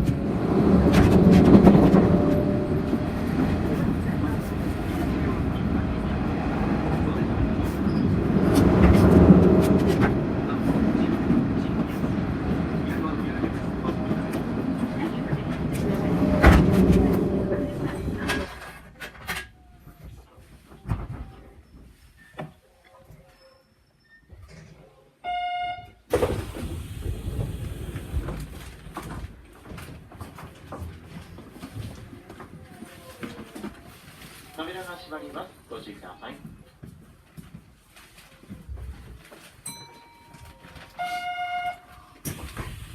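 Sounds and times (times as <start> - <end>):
electric train rumbling on rails: 0.0 - 19.5, 26.0 - 32.0, 39.7 - 42.9
electric signal bell ringing: 39.7 - 41.8.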